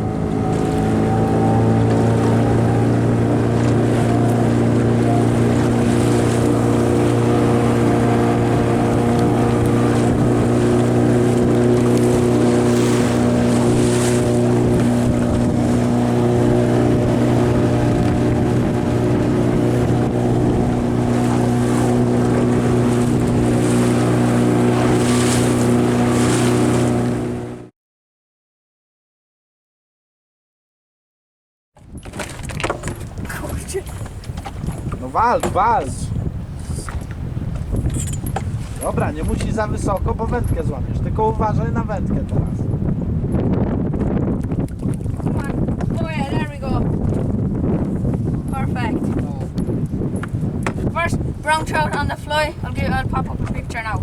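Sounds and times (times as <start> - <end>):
boat motor droning: 0.0 - 27.7, 31.9 - 54.0.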